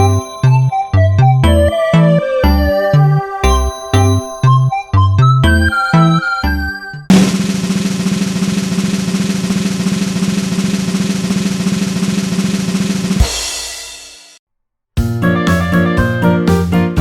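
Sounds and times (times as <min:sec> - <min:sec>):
ringing drum hit: 0:07.1 - 0:14.0
snare drum roll: 0:07.1 - 0:14.4.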